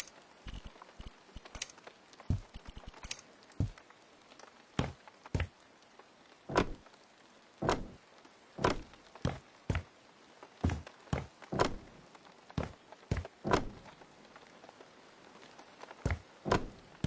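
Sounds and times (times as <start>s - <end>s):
knocks and thuds: 2.3s - 2.9s, 3.6s - 3.8s, 4.8s - 5.5s, 6.5s - 6.8s, 7.6s - 8.0s, 8.6s - 9.9s, 10.6s - 12.0s, 12.6s - 13.9s, 16.1s - 17.0s.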